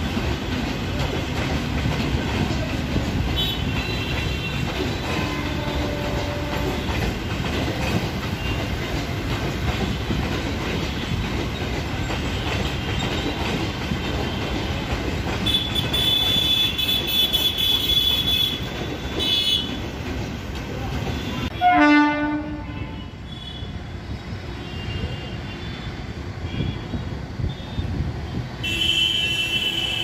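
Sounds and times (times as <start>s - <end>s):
train wheels clattering on rails: 0.0s - 23.0s
train horn: 3.4s - 7.0s, 21.2s - 23.7s, 28.6s - 30.0s.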